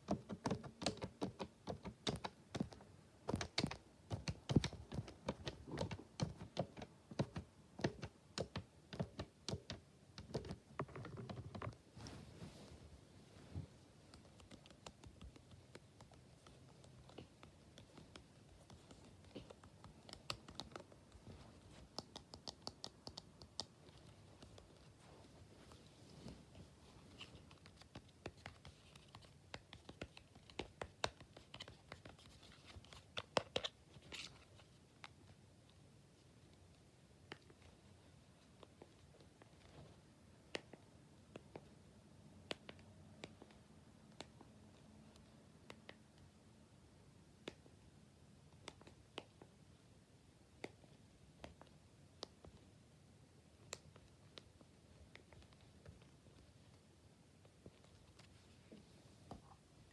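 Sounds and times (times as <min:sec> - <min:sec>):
light clicks and taps: 0:13.5 - 0:35.8.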